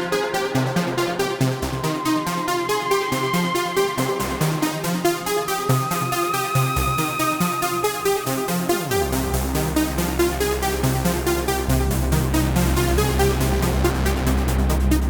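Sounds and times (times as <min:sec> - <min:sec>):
electronic sequenced synth music: 0:00.0 - 0:15.0
synth bass note gliding down: 0:08.9 - 0:15.0.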